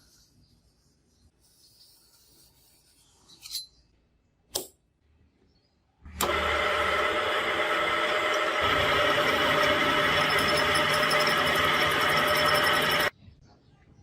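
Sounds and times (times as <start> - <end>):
power tool whining: 6.1 - 13.1.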